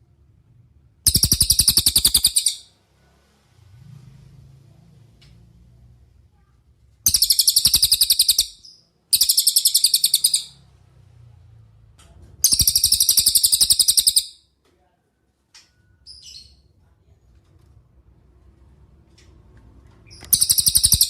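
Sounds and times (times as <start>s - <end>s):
songbird trilling: 1.1s - 2.7s, 7.1s - 10.6s, 12.4s - 14.3s, 20.2s - 21.0s.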